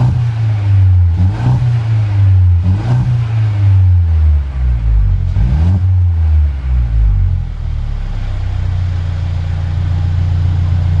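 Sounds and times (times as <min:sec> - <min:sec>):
car engine idling: 0:00.0 - 0:11.0
car engine revving: 0:00.0 - 0:11.0.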